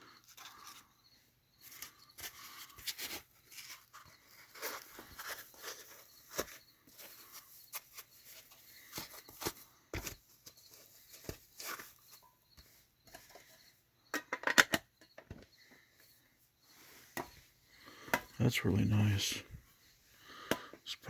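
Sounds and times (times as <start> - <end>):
metal model clicks and knocks: 14.1 - 15.4.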